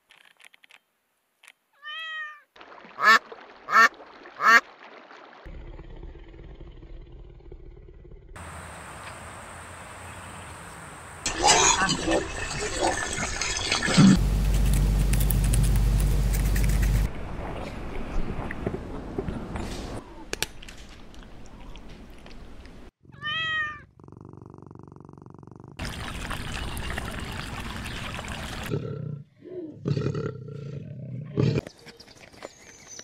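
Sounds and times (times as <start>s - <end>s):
cat meowing: 1.8s - 2.5s, 23.1s - 23.9s
duck dabbling in stream water: 2.6s - 5.5s, 25.8s - 28.7s.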